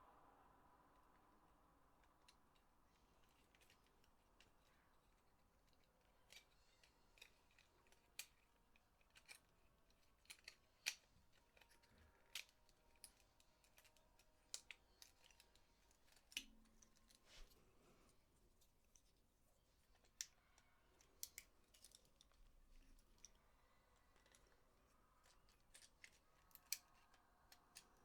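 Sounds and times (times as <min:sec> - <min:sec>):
plastic controller parts clicking: 0:03.2 - 0:17.2, 0:25.2 - 0:28.0.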